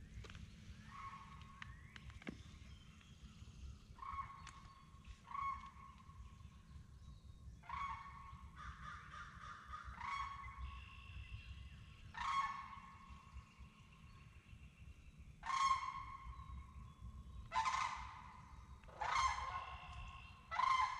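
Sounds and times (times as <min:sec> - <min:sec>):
large birds honking: 0:17.5 - 0:20.9.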